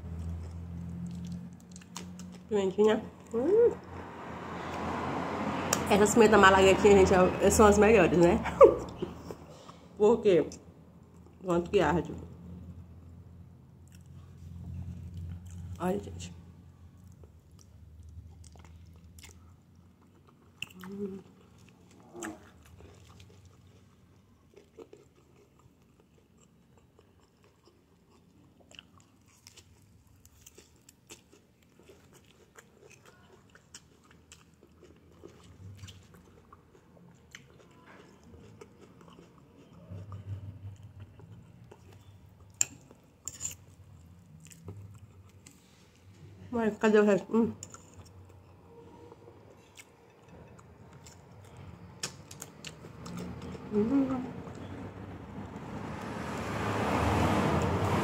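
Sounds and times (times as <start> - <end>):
wet chewing sounds: 0.0 - 3.4, 16.9 - 46.2, 49.5 - 54.9.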